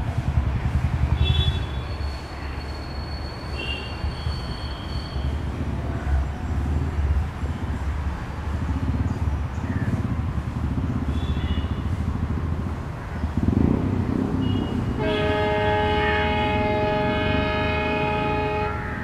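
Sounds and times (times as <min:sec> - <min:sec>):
train rumbling past: 0:00.0 - 0:19.0
locomotive horn chord: 0:14.7 - 0:19.0.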